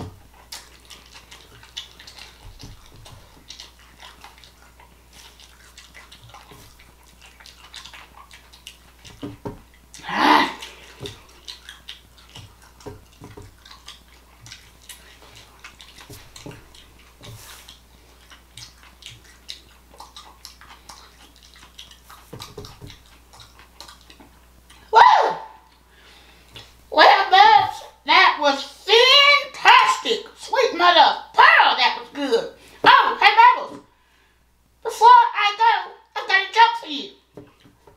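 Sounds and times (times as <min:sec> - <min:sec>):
wet chewing and lip smacking: 0:00.0 - 0:26.9, 0:37.2 - 0:37.9.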